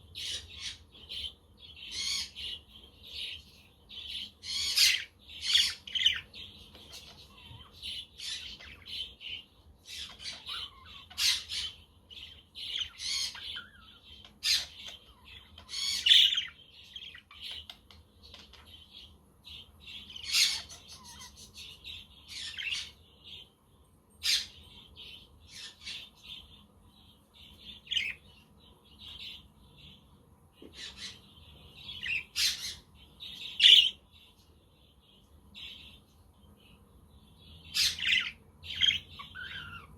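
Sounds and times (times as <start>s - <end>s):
budgerigars chirping and chattering: 0.0s - 23.6s, 24.2s - 39.9s.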